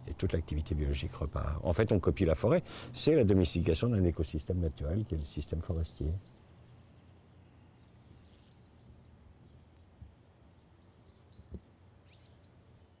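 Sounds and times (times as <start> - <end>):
small bird chirping: 5.9 - 9.9, 10.5 - 13.0.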